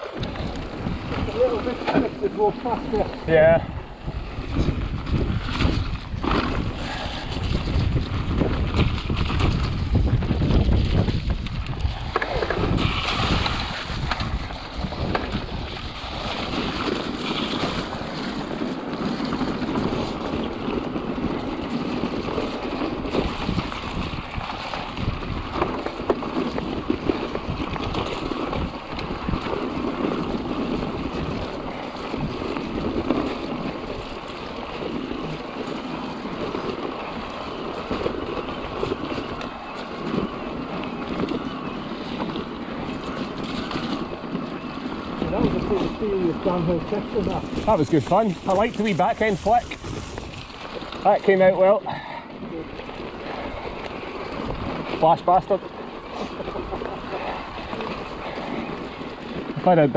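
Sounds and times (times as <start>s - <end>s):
bicycle tyre noise: 0.0s - 59.9s
wind rushing over microphone: 0.0s - 59.9s
bike knocks and rattles: 4.4s - 51.7s.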